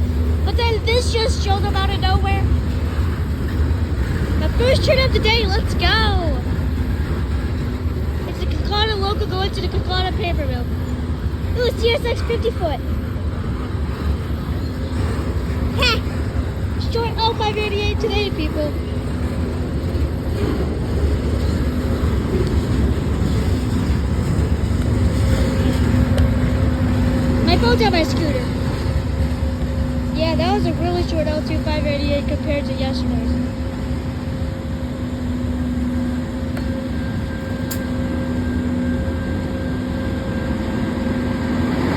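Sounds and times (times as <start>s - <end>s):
freight train rumbling past: 0.0s - 41.9s.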